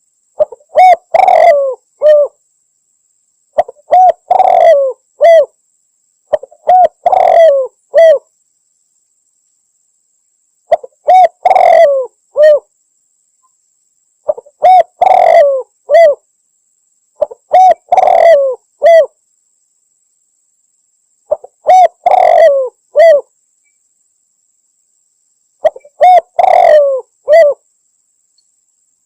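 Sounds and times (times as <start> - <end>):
dove cooing: 0.4 - 2.4, 3.6 - 5.5, 6.3 - 8.3, 10.7 - 12.7, 14.3 - 16.2, 17.2 - 19.2, 21.3 - 23.3, 25.6 - 27.6.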